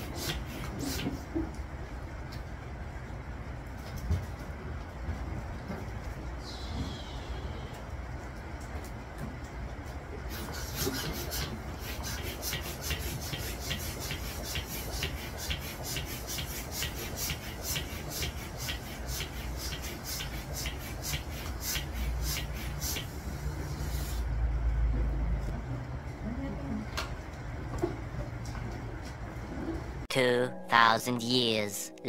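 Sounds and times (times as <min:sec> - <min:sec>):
hand balloon pump puffing: 0:10.3 - 0:24.2.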